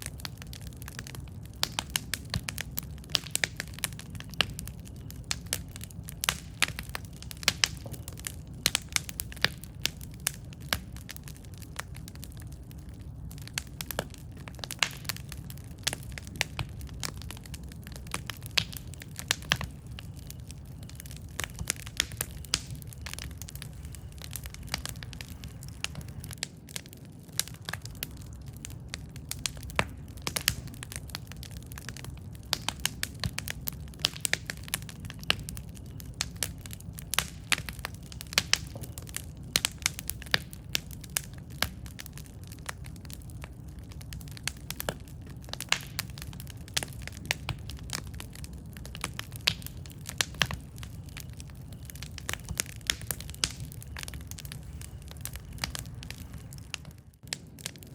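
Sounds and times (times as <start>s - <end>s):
burning wood crackles and pops: 0.0s - 57.9s
campfire flame rumble: 0.0s - 57.9s.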